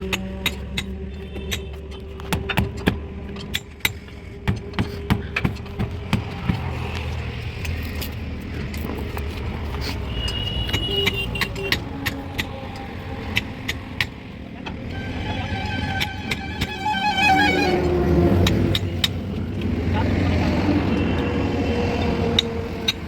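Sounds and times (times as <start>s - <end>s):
tools knocking on tractor wheel: 0.1s - 6.9s.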